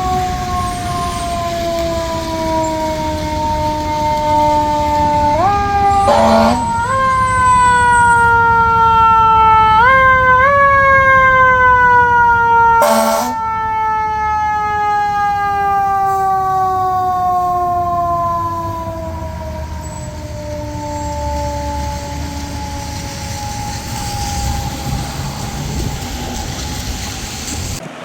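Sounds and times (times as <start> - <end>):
fire truck siren wailing: 0.0 - 28.0
short loud horn blasts: 6.0 - 6.8, 12.8 - 13.4.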